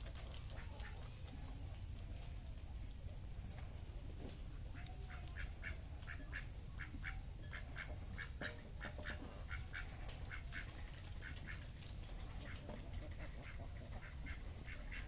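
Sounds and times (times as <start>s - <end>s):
low steady rumble: 0.0s - 15.0s
ducks quacking: 4.7s - 15.0s.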